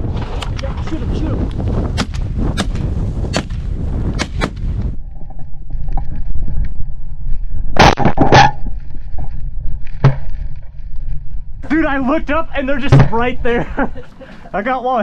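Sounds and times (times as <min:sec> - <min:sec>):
wind rumble on microphone: 0:00.0 - 0:14.0
shotgun shots: 0:02.0 - 0:04.7.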